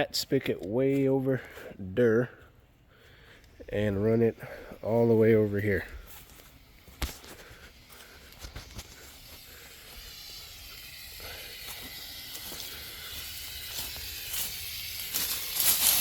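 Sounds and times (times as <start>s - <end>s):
hose spraying water on metal coil: 5.0s - 16.0s.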